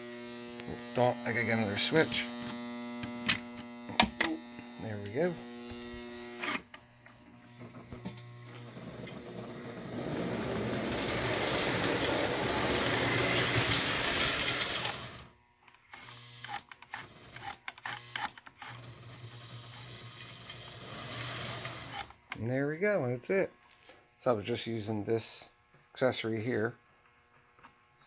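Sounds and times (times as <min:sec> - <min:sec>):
electric hum: 0:00.0 - 0:16.6
toy train rattling on track: 0:08.8 - 0:15.3, 0:16.0 - 0:22.0.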